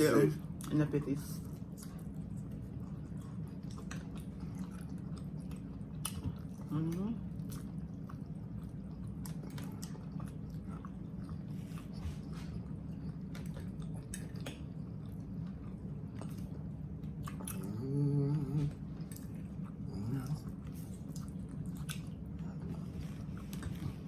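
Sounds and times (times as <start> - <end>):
people chewing wet food: 0.0 - 24.0
person humming: 17.7 - 18.7
wet mouth clicks and squishes: 21.0 - 22.2.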